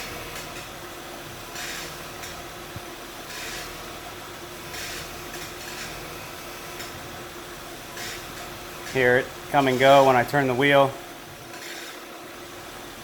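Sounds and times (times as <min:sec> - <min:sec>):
power steering pump hissing: 0:07.9 - 0:10.8.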